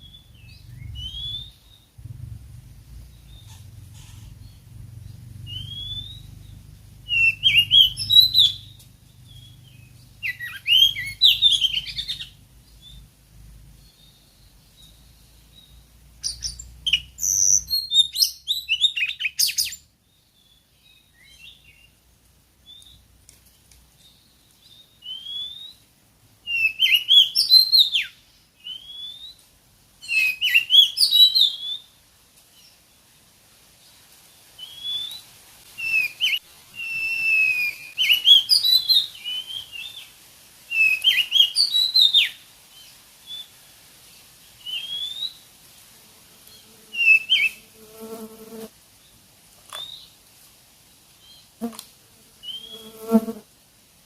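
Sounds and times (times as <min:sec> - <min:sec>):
bird chirping and whistling: 0:00.0 - 0:01.6, 0:05.5 - 0:06.3, 0:07.1 - 0:12.3, 0:16.2 - 0:19.8, 0:30.1 - 0:31.8, 0:35.8 - 0:39.7, 0:40.8 - 0:42.3.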